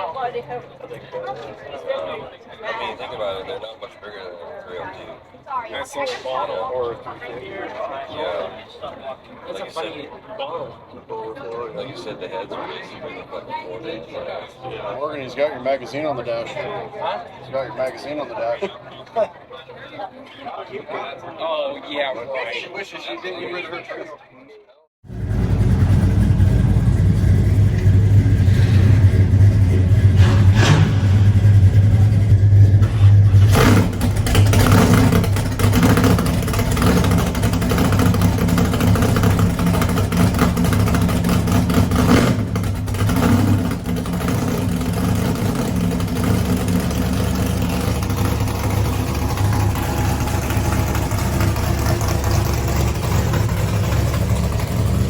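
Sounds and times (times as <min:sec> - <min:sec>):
car engine rumbling: 0:25.0 - 0:55.0.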